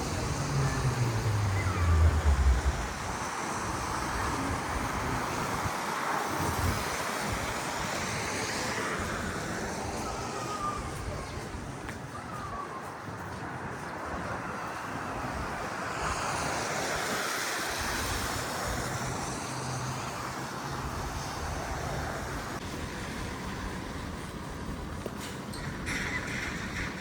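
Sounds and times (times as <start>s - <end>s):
low engine hum: 0.0s - 3.3s
tyres hissing on wet pavement: 0.0s - 11.8s, 14.5s - 27.0s.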